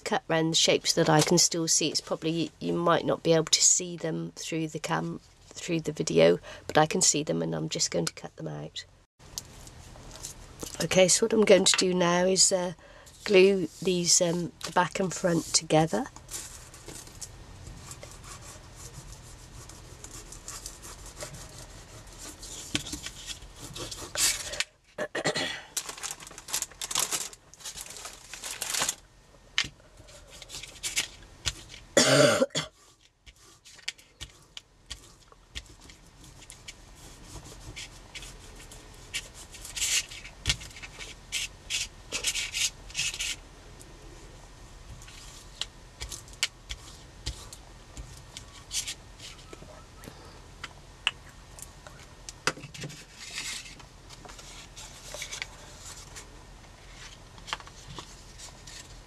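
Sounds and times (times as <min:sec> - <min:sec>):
person coughing: 0:25.0 - 0:25.7, 0:32.0 - 0:32.7
paper and card rustling: 0:25.8 - 0:29.0, 0:30.0 - 0:31.9, 0:33.0 - 0:43.4, 0:52.8 - 0:59.0.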